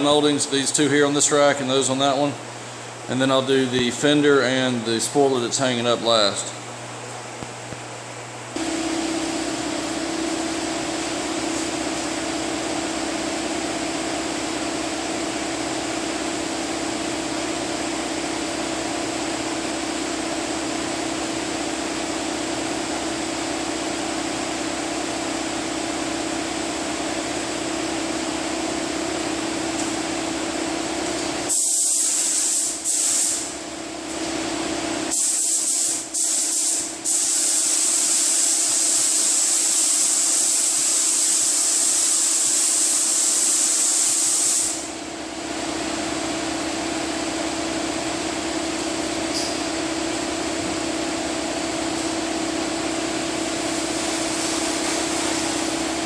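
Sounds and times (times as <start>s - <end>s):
machine hum with drone: 8.5s - 31.5s
spray gun hissing: 31.5s - 33.5s, 35.1s - 44.9s.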